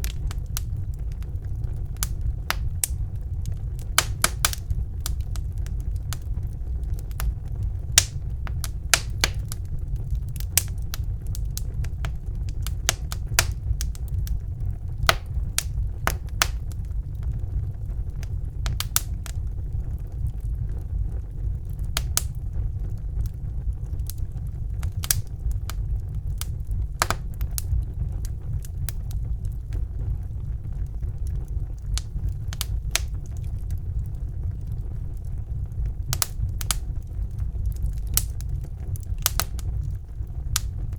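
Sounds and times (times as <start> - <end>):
low rumble of flames: 0.0 - 40.9
wood fire crackling and popping: 0.0 - 40.9.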